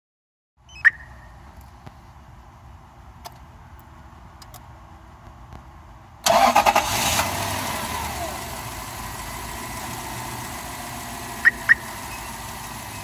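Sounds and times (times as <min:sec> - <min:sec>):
car engine cranking and starting: 0:06.2 - 0:13.0.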